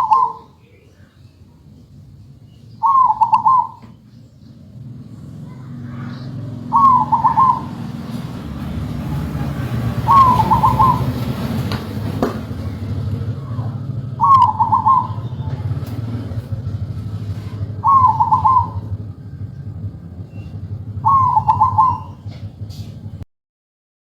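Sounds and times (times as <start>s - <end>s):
dove cooing song: 0.0s - 0.8s, 2.8s - 4.1s, 5.2s - 22.9s
steady low rumble: 0.0s - 23.2s.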